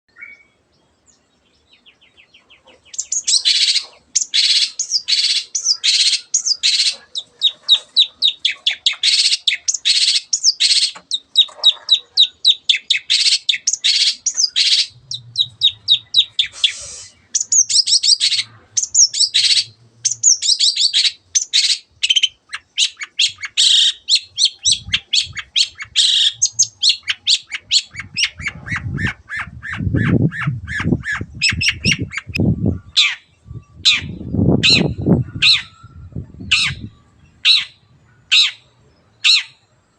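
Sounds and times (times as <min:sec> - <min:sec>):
shrike chattering song: 0:02.5 - 0:39.6
low rumble: 0:14.9 - 0:16.4.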